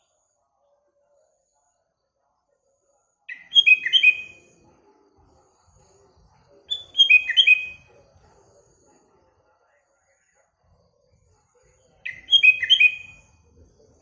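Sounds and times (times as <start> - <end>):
bulbul singing whistled notes: 3.3 - 4.5, 6.7 - 7.9, 12.1 - 13.4.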